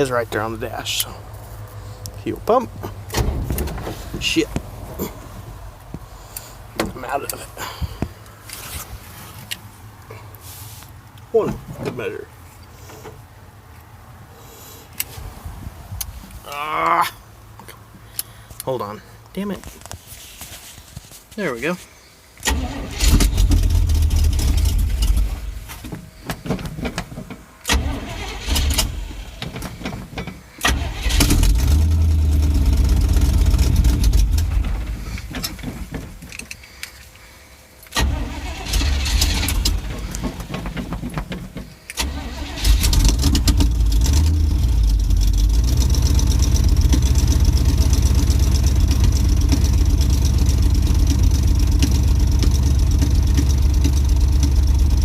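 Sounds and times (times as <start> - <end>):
truck engine stumbling then idling: 30.8 - 36.0, 38.0 - 55.0.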